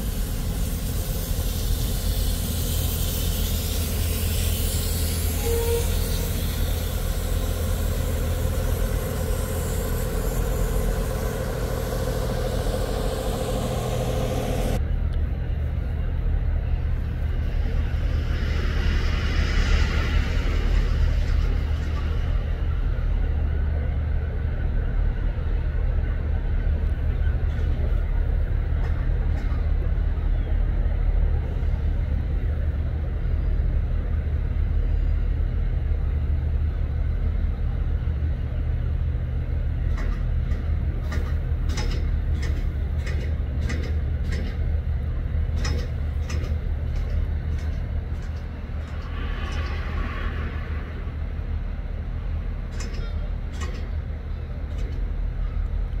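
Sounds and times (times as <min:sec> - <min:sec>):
train low rumble: 0:00.0 - 0:56.0
sharp clanks and clicks: 0:39.9 - 0:44.7, 0:45.5 - 0:49.8, 0:52.7 - 0:54.0.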